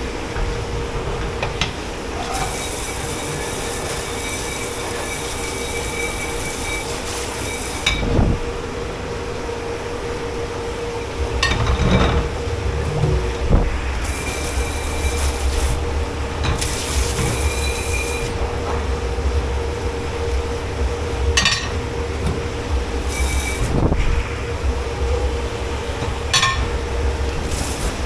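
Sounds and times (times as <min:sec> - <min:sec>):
low machine hum: 0:00.0 - 0:28.0
spraying water hiss: 0:01.8 - 0:08.8, 0:13.4 - 0:18.4, 0:22.7 - 0:24.3
high scraping squeal: 0:01.9 - 0:08.4, 0:13.0 - 0:15.9, 0:16.6 - 0:18.4, 0:23.0 - 0:23.9.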